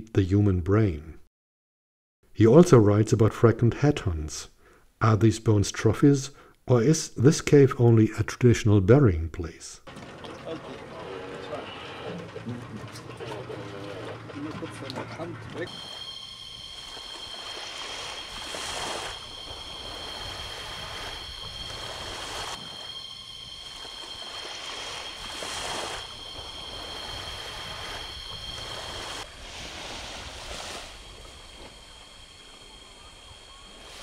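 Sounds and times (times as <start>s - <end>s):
waves washing onto shore: 9.9s - 34.0s
high-pitched whine: 10.3s - 34.0s.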